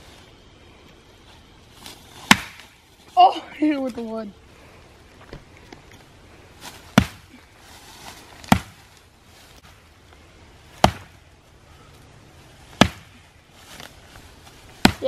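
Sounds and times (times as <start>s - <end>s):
axe chopping tree trunk: 2.2s - 2.8s, 6.9s - 7.3s, 8.4s - 8.8s, 10.7s - 11.2s, 12.7s - 13.2s, 14.8s - 15.0s.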